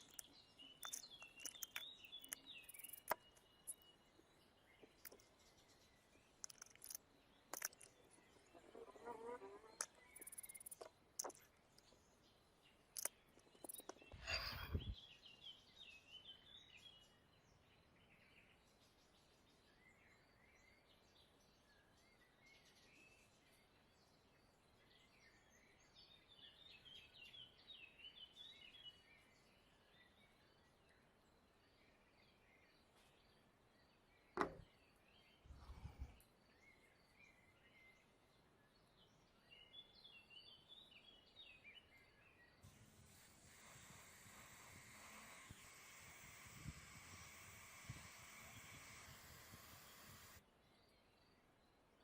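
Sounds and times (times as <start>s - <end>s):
small bird chirps: 0.0s - 17.1s.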